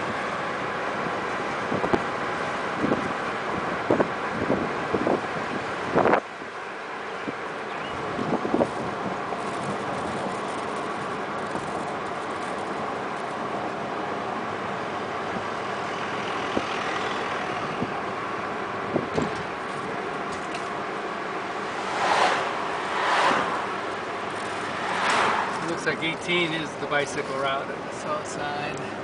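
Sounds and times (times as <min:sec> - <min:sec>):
car road and engine noise: 0:00.0 - 0:29.0
brief whooshes: 0:21.6 - 0:23.9.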